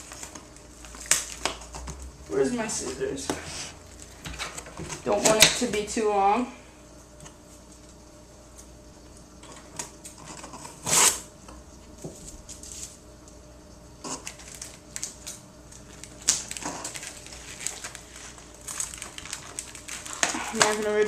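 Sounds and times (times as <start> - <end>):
cardboard packaging being handled: 14.1 - 21.0.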